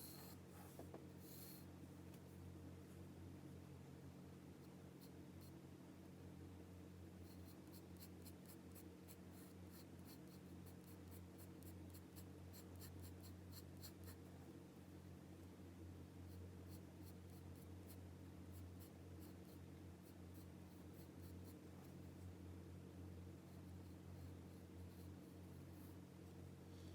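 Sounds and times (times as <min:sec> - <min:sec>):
pencil scratching on paper: 0:00.0 - 0:01.6, 0:07.2 - 0:14.2, 0:16.2 - 0:22.0, 0:23.4 - 0:26.0
faint low hum: 0:00.0 - 0:26.9.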